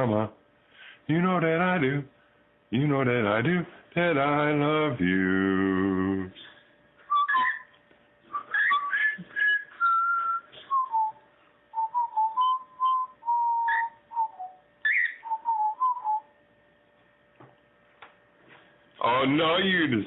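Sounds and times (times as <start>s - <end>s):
person whistling a tune: 7.1s - 7.7s, 8.3s - 16.3s.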